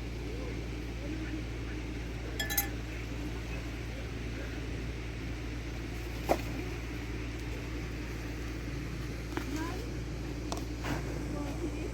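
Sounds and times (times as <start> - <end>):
steady low hum: 0.6 - 5.8
hard object clinking: 2.4 - 2.8.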